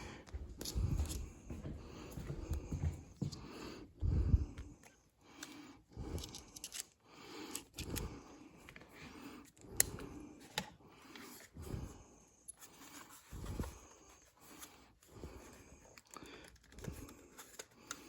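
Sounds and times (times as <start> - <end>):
screwdriver clicks and scrapes: 5.4 - 8.8.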